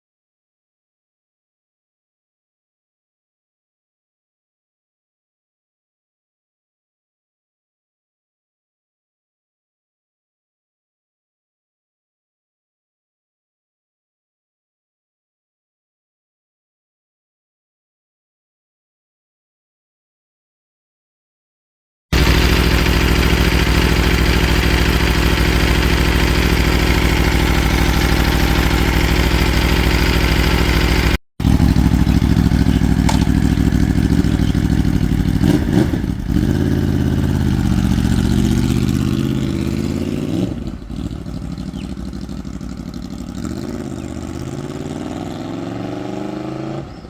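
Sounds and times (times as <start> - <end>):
motorcycle engine running: 22.2 - 47.0.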